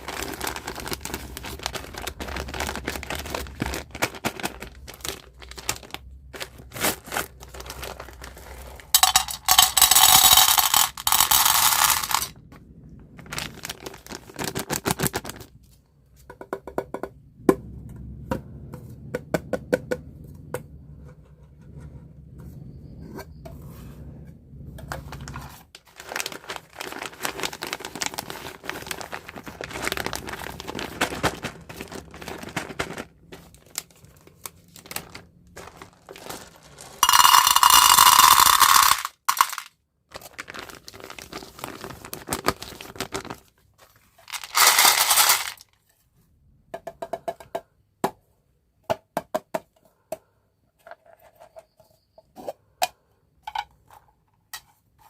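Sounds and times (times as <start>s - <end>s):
candy packaging crinkling: 0.0s - 12.3s, 13.2s - 15.6s, 25.1s - 45.8s
candy pieces clicking: 7.6s - 12.3s, 36.9s - 39.7s, 44.3s - 45.6s
loud packaging bursts: 44.3s - 45.6s.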